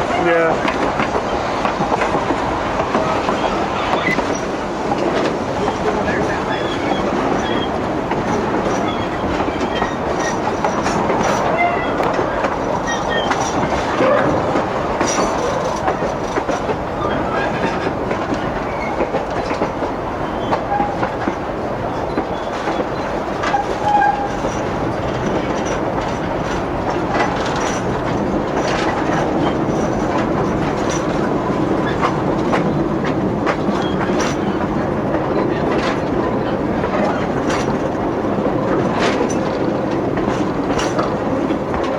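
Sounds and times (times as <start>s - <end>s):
train car rumble: 0.0s - 41.9s
wheels clicking over rail joints: 0.4s - 41.9s
wheel squeaks: 5.6s - 19.6s, 20.2s - 32.8s.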